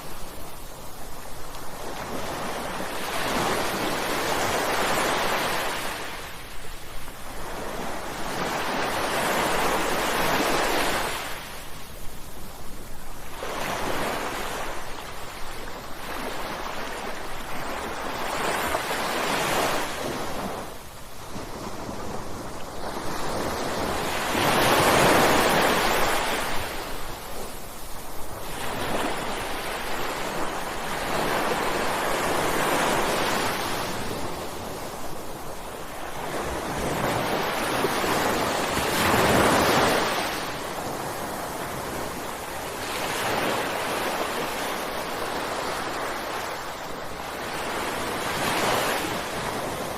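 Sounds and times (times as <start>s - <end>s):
ocean waves breaking: 28.2s - 49.9s.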